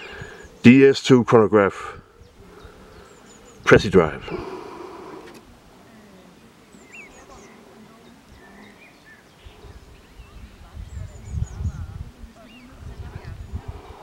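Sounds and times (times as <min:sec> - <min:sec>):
faint bird chirps: 0:05.8 - 0:14.0.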